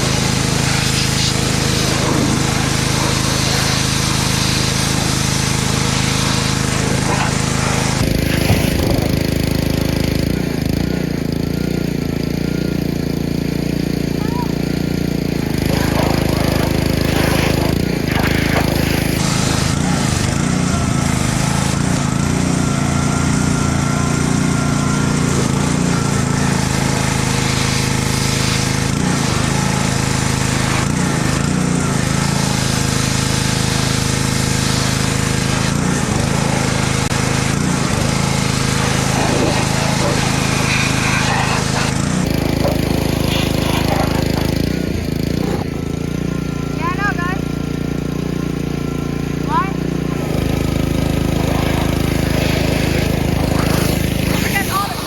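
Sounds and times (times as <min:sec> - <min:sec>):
hiss: 0:00.0 - 0:09.1, 0:38.6 - 0:42.0
small gasoline engine running: 0:00.0 - 0:55.0.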